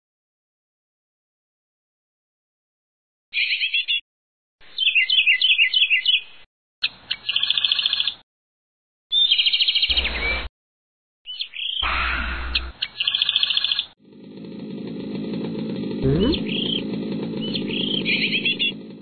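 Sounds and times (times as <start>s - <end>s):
bird chirping and twittering: 3.4s - 4.0s, 4.7s - 8.2s, 9.1s - 10.5s, 11.3s - 13.9s, 16.0s - 18.8s.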